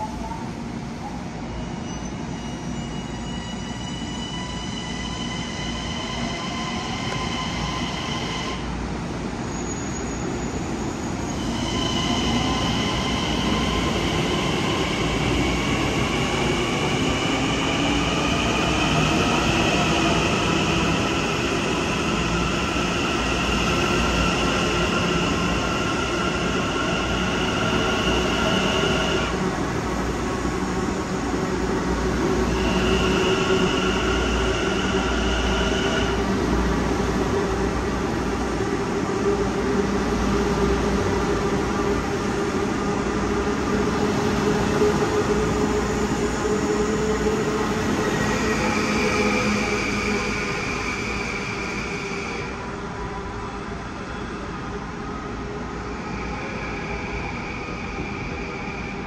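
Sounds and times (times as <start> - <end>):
train wheels squealing: 0.0 - 8.7, 9.4 - 29.4, 32.4 - 36.2, 45.4 - 54.6, 55.8 - 59.0.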